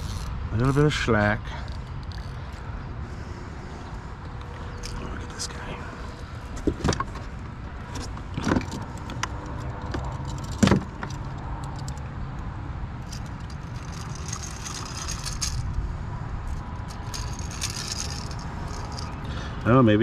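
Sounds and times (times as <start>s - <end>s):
metallic jingle of lures: 13.0s - 15.8s, 16.5s - 19.4s.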